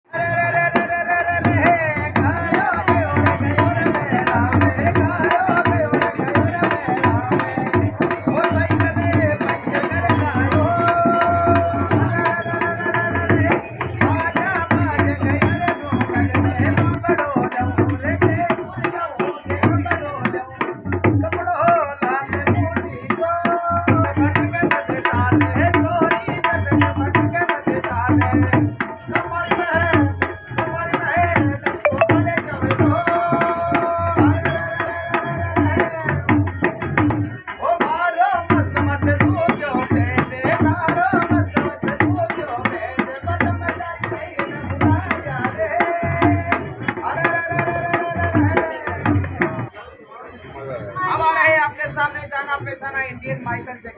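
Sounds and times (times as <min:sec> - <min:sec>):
hand drum beat: 0:31.4 - 0:34.5.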